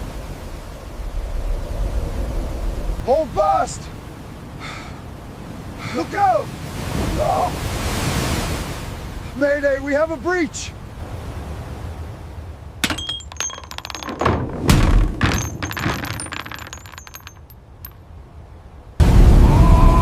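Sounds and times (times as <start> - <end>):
debris crashing and clinking: 12.8 - 18.0.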